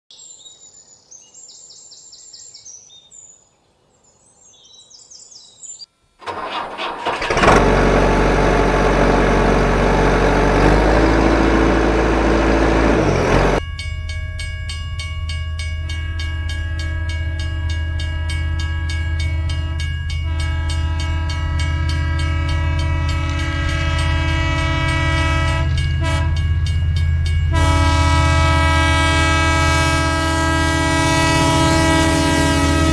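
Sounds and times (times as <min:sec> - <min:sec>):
vehicle engine starting and running: 0:06.2 - 0:13.6.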